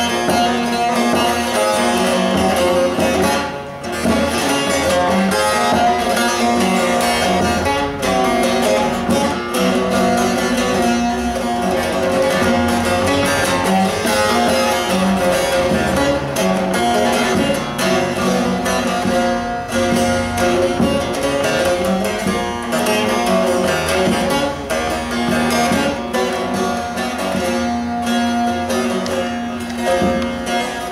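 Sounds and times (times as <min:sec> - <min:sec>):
plucked lute melody: 0:00.0 - 0:30.9.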